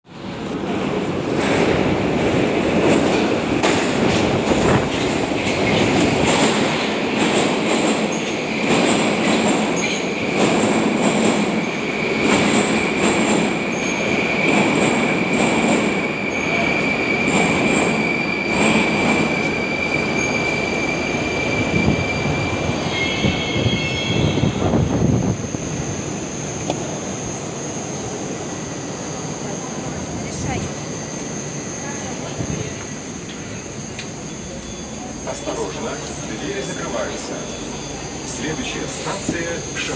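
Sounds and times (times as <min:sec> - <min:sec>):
steady high whine: 0:24.6 - 0:39.9.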